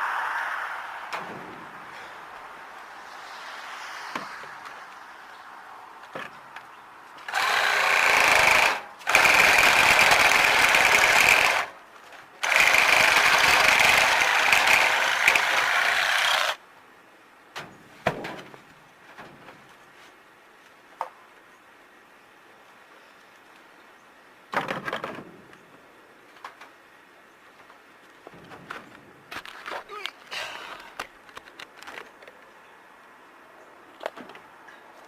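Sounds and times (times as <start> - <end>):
power tool running hard: 7.3 - 11.7, 12.4 - 16.6.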